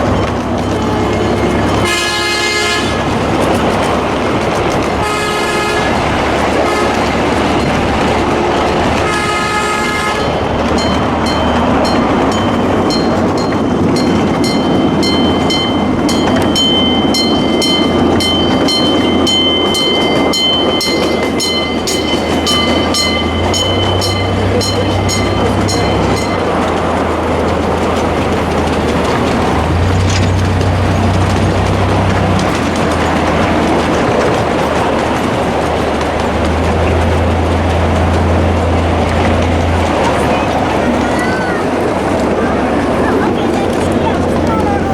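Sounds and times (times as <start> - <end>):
diesel train rumbling past: 0.0 - 44.9
train horn: 0.6 - 3.2, 5.0 - 10.8
bell ringing: 10.2 - 27.2.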